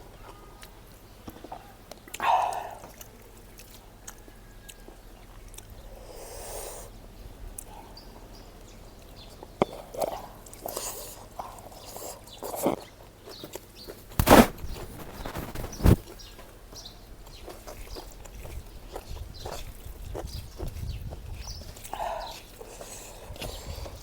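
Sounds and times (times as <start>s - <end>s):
person chewing: 0.0s - 24.0s.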